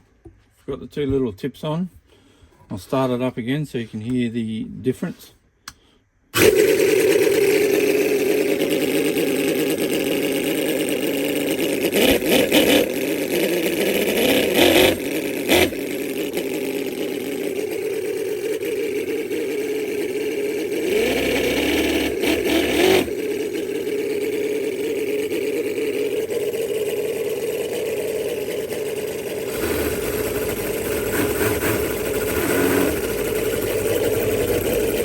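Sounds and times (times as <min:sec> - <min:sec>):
model engine idling and revving: 0:06.4 - 0:35.0.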